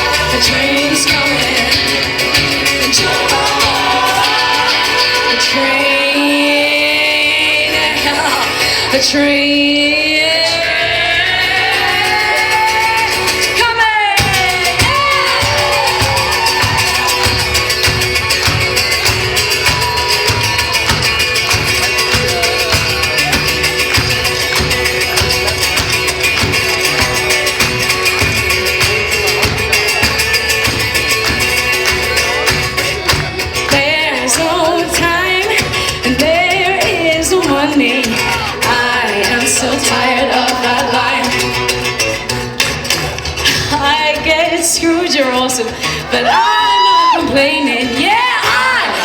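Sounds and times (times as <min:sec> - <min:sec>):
wordless singing: 0:00.0 - 0:17.6, 0:32.2 - 0:41.7
live music fast rhythm: 0:00.0 - 0:49.0.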